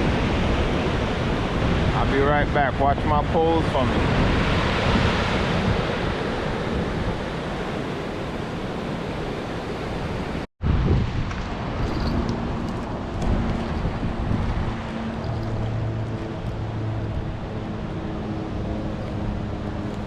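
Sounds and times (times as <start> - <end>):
waves breaking on beach: 0.0 - 19.9
wind on microphone: 0.0 - 20.0.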